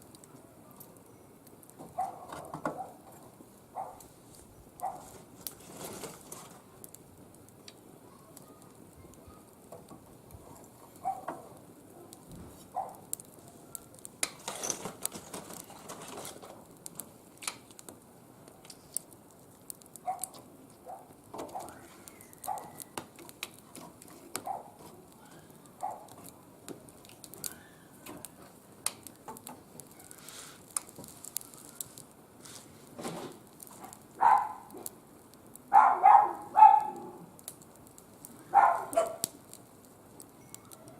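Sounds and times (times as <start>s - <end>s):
wood fire crackling in a grill: 0.0s - 40.9s
dog barking: 2.0s - 3.0s, 3.8s - 4.0s, 4.8s - 5.1s, 11.0s - 11.4s, 12.8s - 13.1s, 20.0s - 21.8s, 22.4s - 22.8s, 24.4s - 24.8s, 25.8s - 26.1s, 34.2s - 34.7s, 35.7s - 37.2s, 38.5s - 39.3s.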